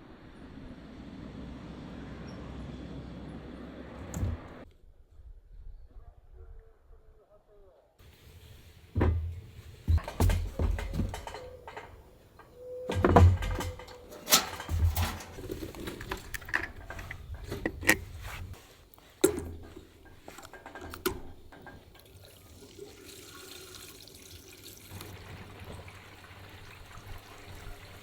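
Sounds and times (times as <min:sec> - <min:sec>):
objects clicking and knocking: 0:08.0 - 0:22.2.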